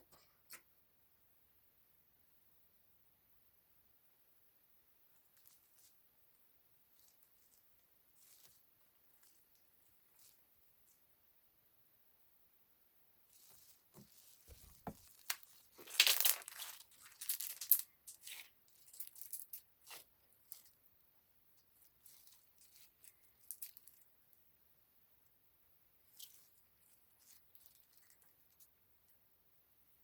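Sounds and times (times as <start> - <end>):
paper or plastic crinkling: 13.4 - 17.8.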